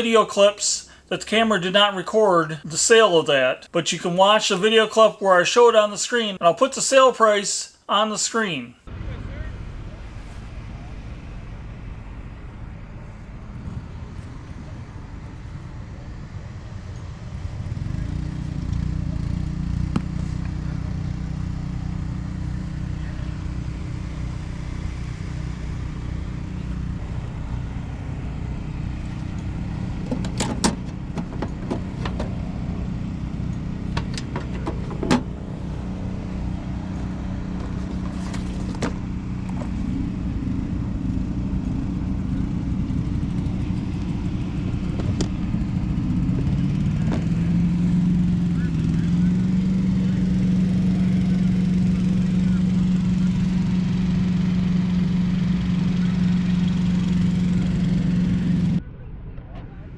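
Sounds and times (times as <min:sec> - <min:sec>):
low engine hum: 0:08.8 - 0:59.9
sharp clicks and knocks: 0:30.0 - 0:32.4, 0:33.9 - 0:35.3.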